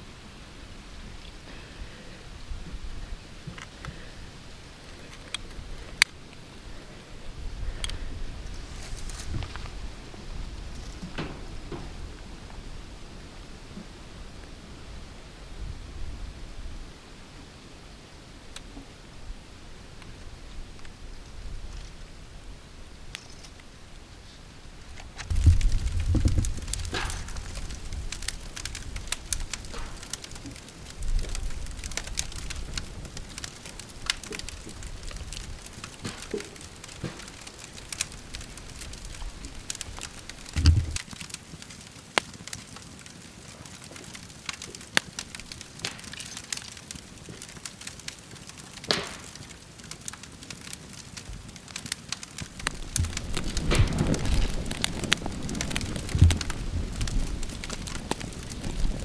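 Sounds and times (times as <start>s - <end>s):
campfire crackling and popping: 0.4s - 14.6s, 18.4s - 18.8s, 24.8s - 59.0s
low thumps: 38.2s - 41.0s.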